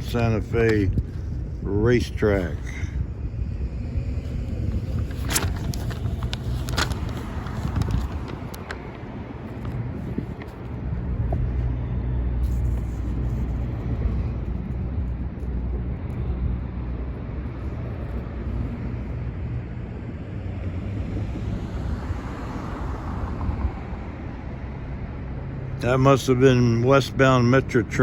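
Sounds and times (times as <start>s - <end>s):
faint whine: 0.0s - 19.8s.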